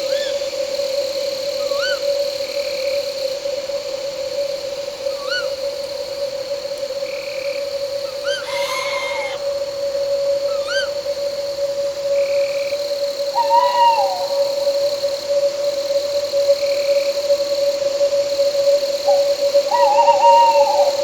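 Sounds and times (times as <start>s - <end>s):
crickets and night insects: 0.0s - 21.0s
owl calling: 5.2s - 5.6s, 8.0s - 9.7s, 10.5s - 11.0s, 13.3s - 14.8s, 19.1s - 21.0s.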